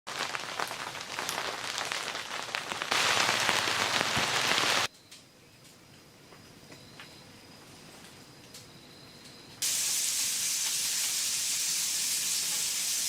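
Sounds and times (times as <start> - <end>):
steady rain: 0.1 - 4.9, 9.6 - 13.0.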